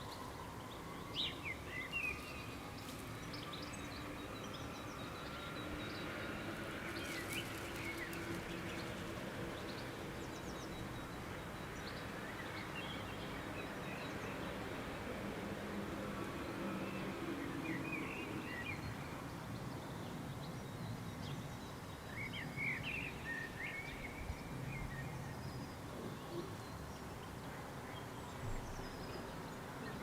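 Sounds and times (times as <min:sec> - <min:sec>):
outdoor background noise: 0:00.0 - 0:30.0.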